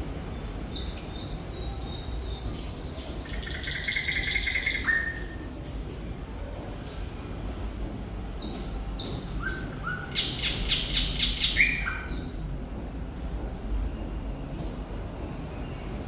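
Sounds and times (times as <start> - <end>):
bird singing whistled notes: 0.4 - 5.4, 8.4 - 12.6.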